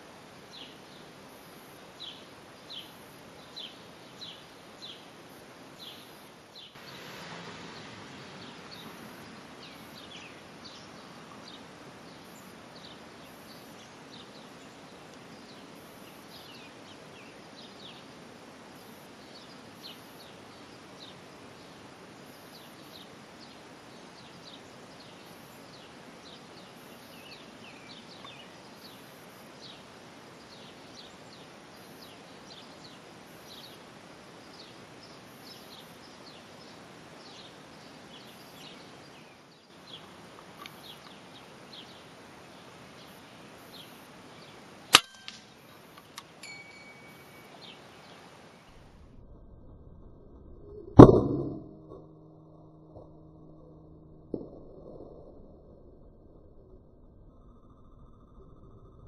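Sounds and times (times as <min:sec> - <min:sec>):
outdoor background hiss: 0:00.0 - 0:49.4
bird chirping: 0:05.8 - 0:18.1, 0:34.5 - 0:48.9.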